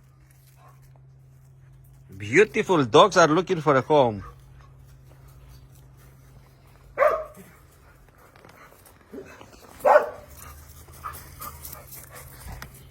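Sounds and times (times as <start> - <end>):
dog barking: 4.2 - 4.4, 7.0 - 7.6, 9.2 - 10.4.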